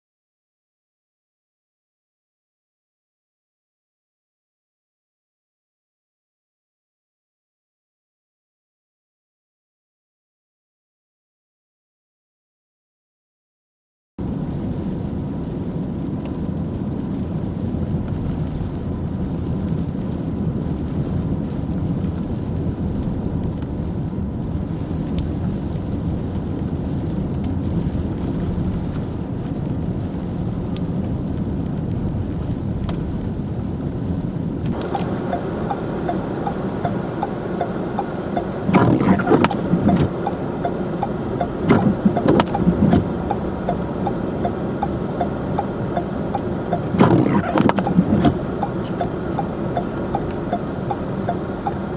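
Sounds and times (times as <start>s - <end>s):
car driving on snowy road: 14.2s - 51.9s.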